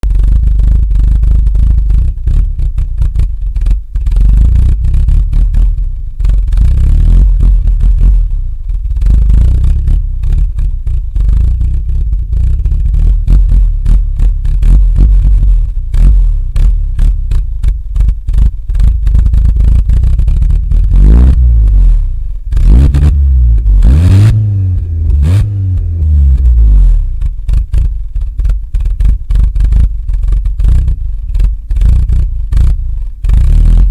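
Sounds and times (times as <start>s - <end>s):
car engine idling roughly: 0.0s - 21.0s, 25.8s - 33.9s
car engine revving: 0.1s - 33.9s.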